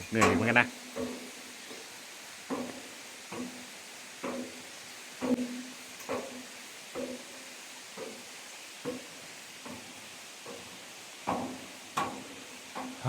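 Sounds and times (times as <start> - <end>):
footsteps clanging on metal stairs: 0.0 - 1.9, 2.5 - 8.3, 8.9 - 13.0.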